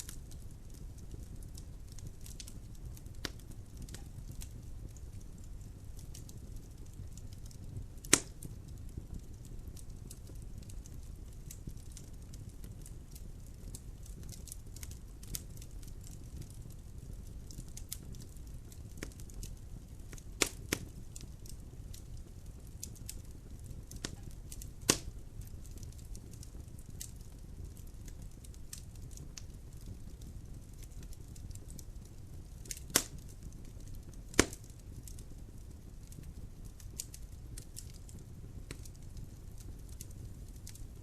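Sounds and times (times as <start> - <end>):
logs burning and crackling: 0.0 - 41.0.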